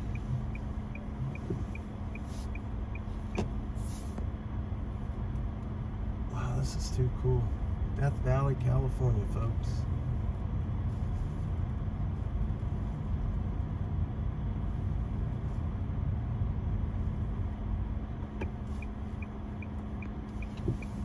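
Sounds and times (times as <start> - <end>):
steady hum: 0.0 - 4.0
car road noise rumble: 0.0 - 21.0.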